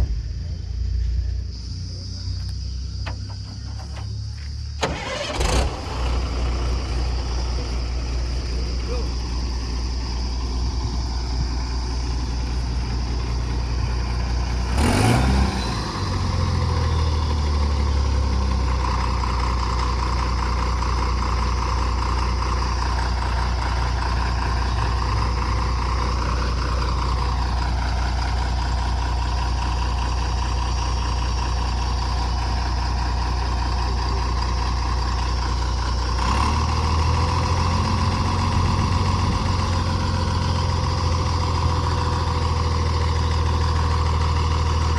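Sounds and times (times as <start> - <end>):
truck diesel engine running: 0.0 - 44.9
loud engine burst: 4.8 - 12.4, 13.1 - 19.0.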